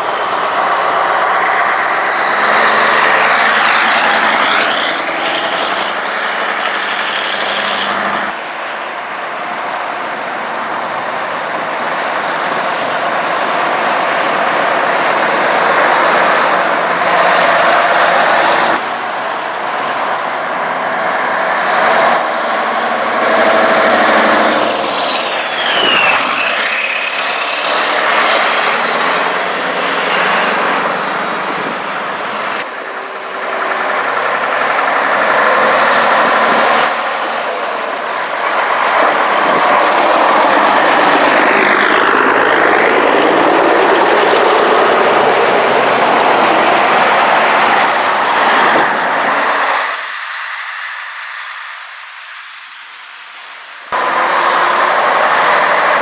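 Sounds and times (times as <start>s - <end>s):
trucks driving past: 0.0s - 56.0s
short falling whistle tone: 25.0s - 27.2s.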